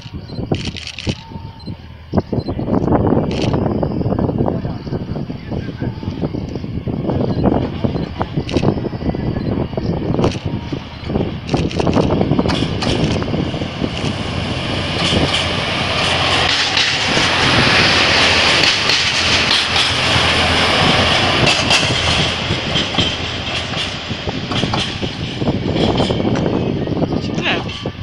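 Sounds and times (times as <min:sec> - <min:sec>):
diesel train passing: 0:00.0 - 0:28.0.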